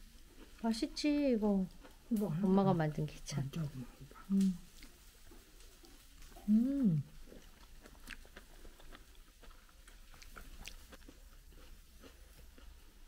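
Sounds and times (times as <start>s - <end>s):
person chewing: 0.0s - 0.7s, 1.7s - 2.6s, 3.5s - 13.0s
person humming mm: 4.2s - 4.7s, 6.4s - 7.2s.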